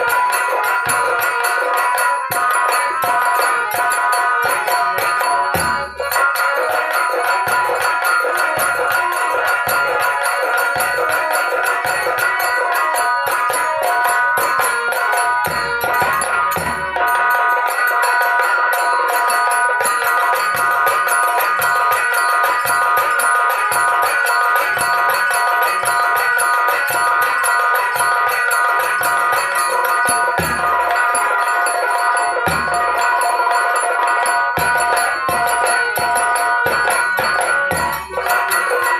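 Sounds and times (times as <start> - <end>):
jingling percussion: 0.0 - 38.9
rhythmic drumming: 0.0 - 38.9
held melody line: 20.5 - 38.9.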